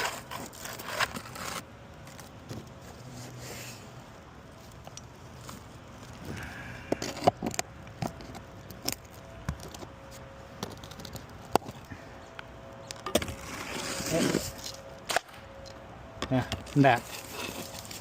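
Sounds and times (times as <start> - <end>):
loud shingle snaps: 15.0 - 15.4
roof shingles clicking and scraping: 16.6 - 18.0.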